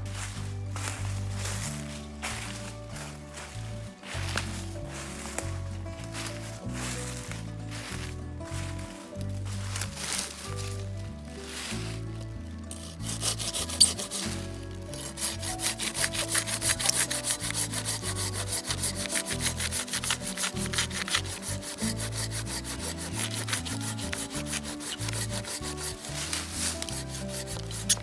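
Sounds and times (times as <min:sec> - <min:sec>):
background music: 0:00.0 - 0:28.0
hand saw cutting wood: 0:12.7 - 0:28.0.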